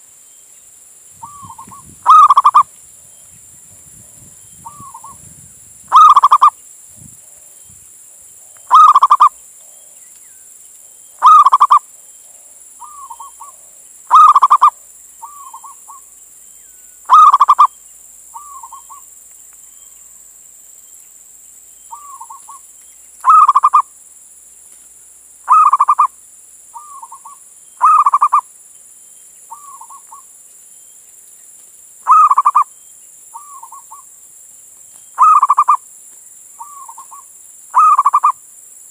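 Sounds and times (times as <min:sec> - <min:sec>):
dove cooing: 0:01.2 - 0:02.7, 0:05.9 - 0:06.5, 0:08.7 - 0:09.4, 0:11.2 - 0:11.8, 0:12.8 - 0:16.0, 0:17.1 - 0:17.7, 0:23.2 - 0:23.8, 0:25.5 - 0:26.1, 0:26.8 - 0:28.4, 0:32.1 - 0:32.7, 0:35.2 - 0:35.8, 0:36.6 - 0:38.4.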